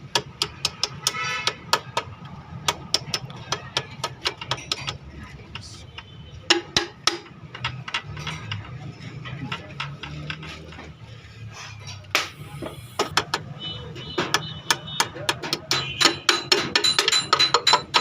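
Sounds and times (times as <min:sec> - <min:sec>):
metal tools clinking and tapping: 0:00.4 - 0:11.0, 0:13.0 - 0:18.0
ringing metal clinks: 0:16.3 - 0:18.0.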